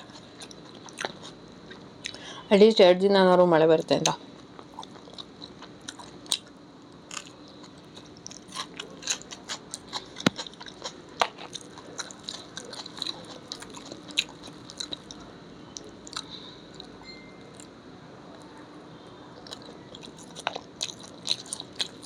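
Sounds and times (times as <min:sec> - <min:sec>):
person chewing and crunching food: 0:00.0 - 0:02.2, 0:04.4 - 0:06.5, 0:07.1 - 0:17.7, 0:19.4 - 0:22.0.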